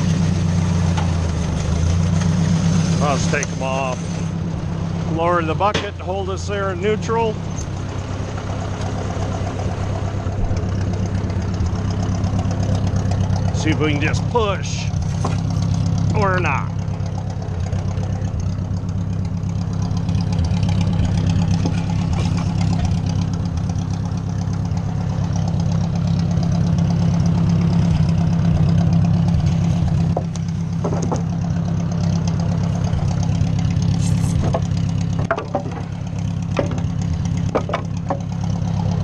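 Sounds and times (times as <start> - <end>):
tractor engine running: 0.0 - 39.0
sharp knocks: 30.1 - 31.4, 34.4 - 35.9, 36.5 - 38.3.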